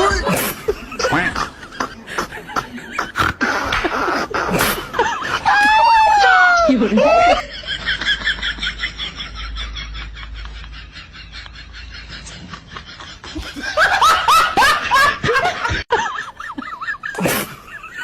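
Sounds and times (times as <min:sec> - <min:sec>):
person laughing: 0:00.0 - 0:18.0.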